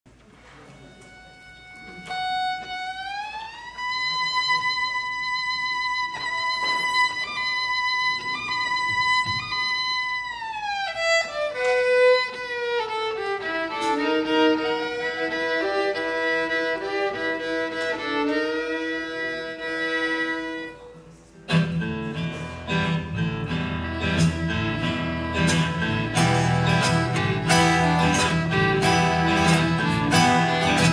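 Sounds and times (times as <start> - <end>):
fiddle melody: 0.6 - 30.9
strummed acoustic guitar: 21.4 - 30.9
bass line: 22.9 - 30.9.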